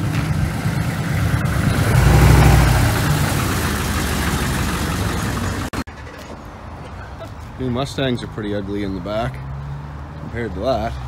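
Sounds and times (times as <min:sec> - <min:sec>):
car engine rumbling: 0:00.0 - 0:06.8.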